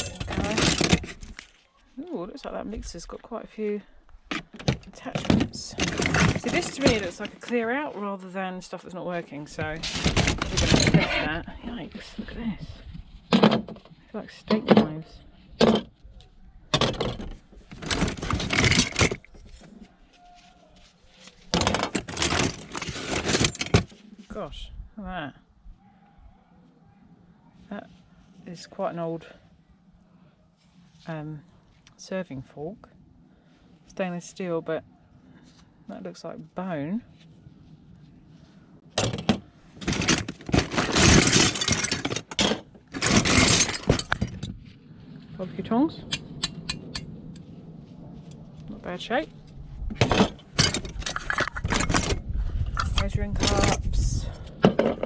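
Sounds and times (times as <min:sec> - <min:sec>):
metal utensils clattering: 0:00.0 - 0:01.2, 0:39.0 - 0:44.4, 0:50.0 - 0:52.2.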